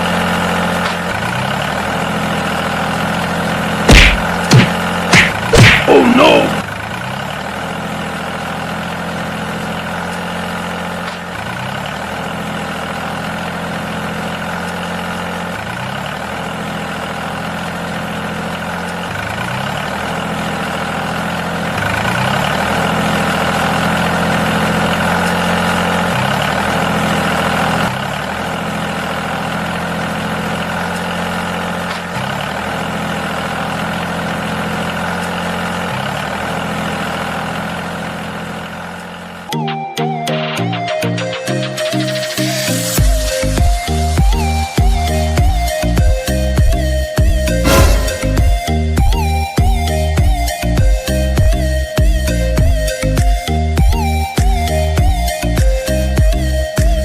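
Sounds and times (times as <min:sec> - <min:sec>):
engine idling: 0:00.0 - 0:39.5.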